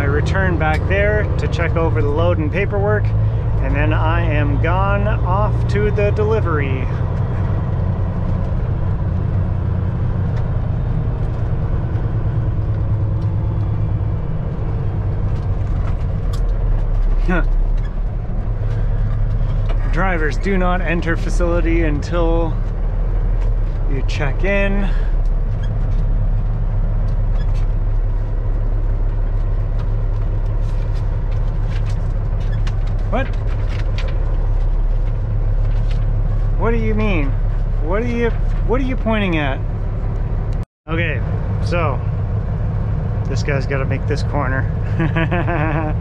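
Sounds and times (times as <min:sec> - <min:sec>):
diesel truck engine rumbling: 0:00.0 - 0:46.0.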